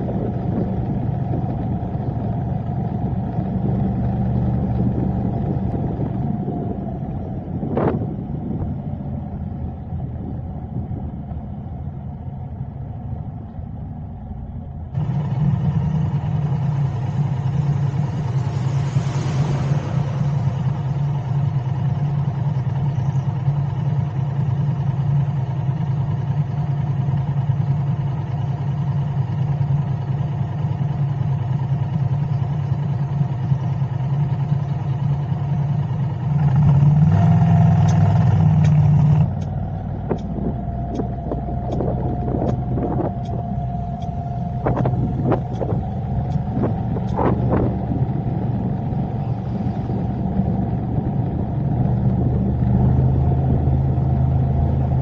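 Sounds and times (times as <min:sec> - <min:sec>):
car engine and road noise: 0:00.0 - 0:55.0
light regular ticking: 0:37.7 - 0:47.2.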